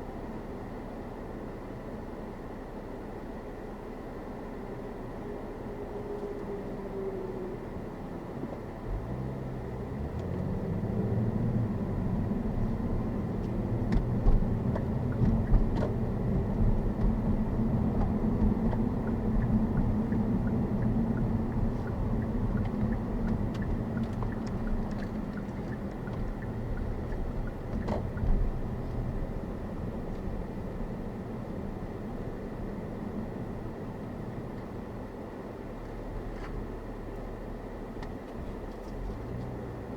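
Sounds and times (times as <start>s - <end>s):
road and wind noise: 0.0s - 39.9s
car engine accelerating: 6.4s - 35.1s.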